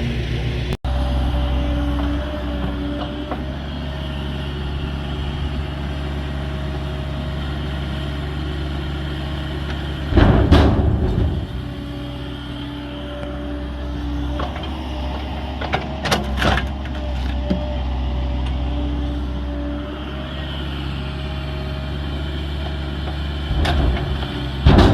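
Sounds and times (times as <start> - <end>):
heavy machinery engine running: 0.0 - 24.9
loud crash: 10.1 - 11.8, 23.5 - 24.9.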